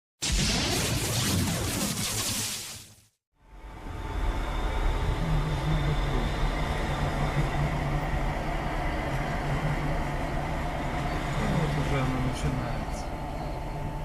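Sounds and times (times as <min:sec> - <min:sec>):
low hum: 0:03.4 - 0:14.0.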